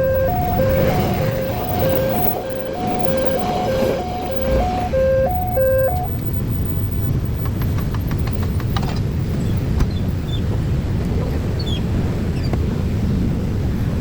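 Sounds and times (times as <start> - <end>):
two-tone crossing alarm: 0.0 - 8.5
low traffic rumble: 0.0 - 14.0.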